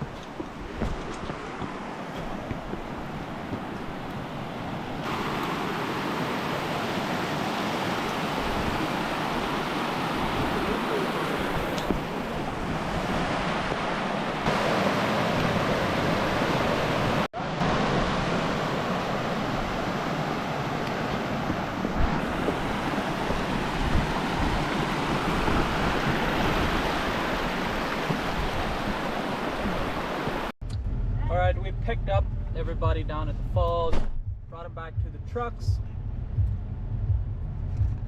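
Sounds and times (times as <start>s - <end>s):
waterfall rushing: 2.1s - 30.5s.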